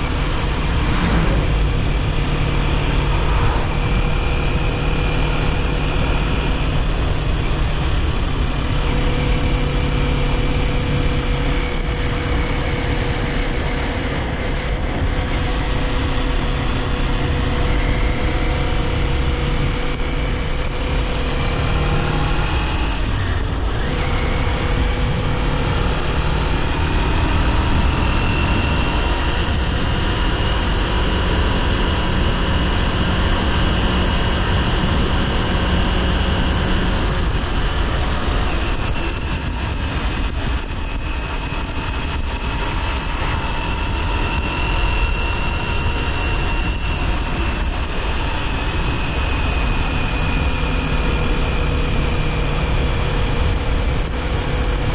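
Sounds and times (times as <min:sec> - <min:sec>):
motorcycle engine cruising: 0:00.0 - 0:54.9
wind and road noise: 0:00.0 - 0:54.9.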